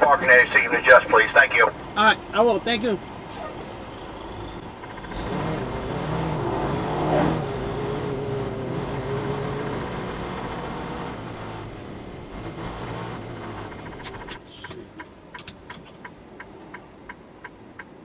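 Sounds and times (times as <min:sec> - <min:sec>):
truck diesel engine accelerating: 0:00.0 - 0:16.3.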